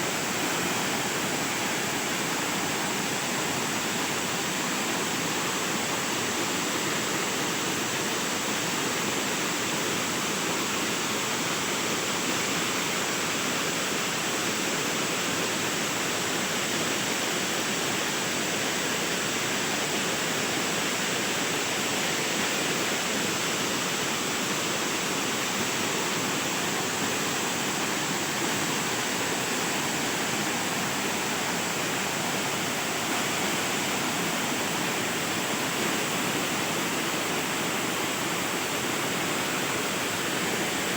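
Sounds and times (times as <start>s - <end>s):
waterfall rushing: 21.3s - 40.9s.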